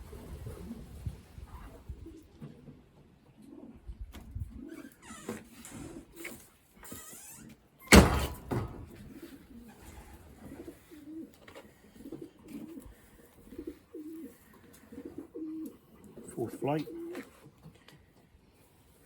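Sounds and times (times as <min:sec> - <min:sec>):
pigeons cooing: 0:07.9 - 0:17.6.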